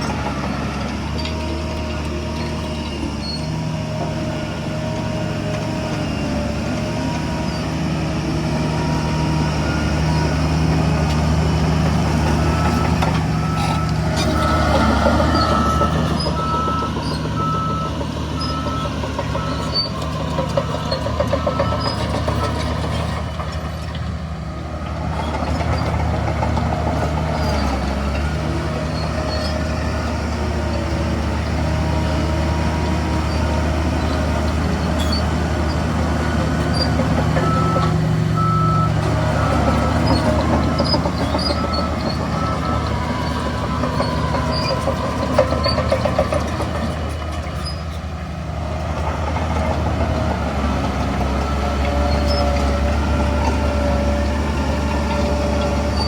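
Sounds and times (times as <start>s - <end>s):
heavy diesel engines working: 0.0s - 56.0s
reversing alarm beeping: 11.6s - 23.2s, 36.8s - 46.3s.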